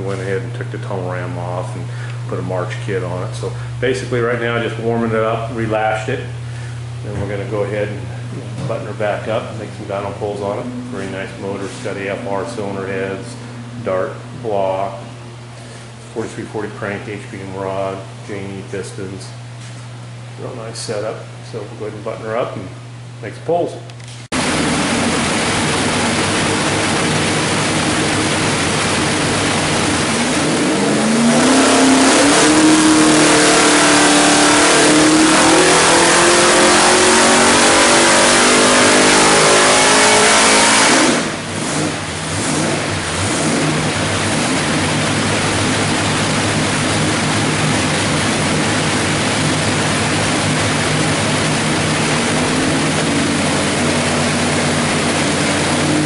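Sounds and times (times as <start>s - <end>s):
engine revving on a dyno: 24.2s - 56.0s.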